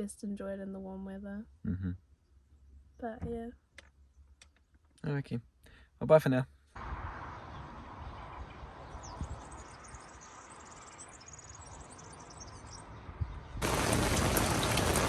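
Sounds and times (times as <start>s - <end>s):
loud steady rain or traffic noise: 6.8s - 10.4s, 13.6s - 15.0s.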